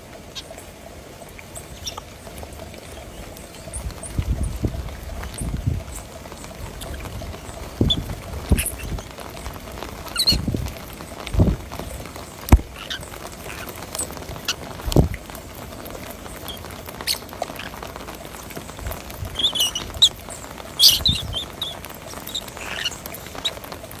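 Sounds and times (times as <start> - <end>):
small birds chirping: 0.1 - 24.0
dull thumps: 12.5 - 12.9, 14.8 - 15.3.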